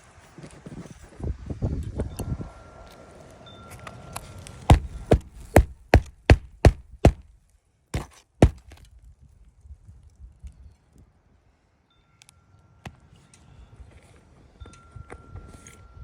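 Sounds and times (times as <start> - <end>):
hammer striking nails: 4.7 - 7.2, 8.0 - 8.6.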